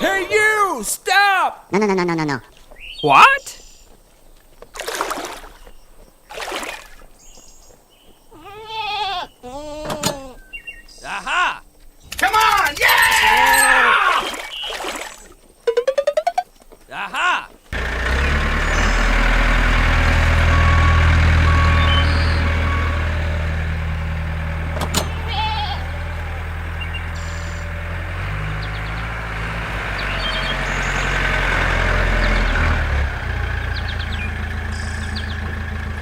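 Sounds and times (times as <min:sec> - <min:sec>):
tractor engine chugging: 0:17.7 - 0:36.0.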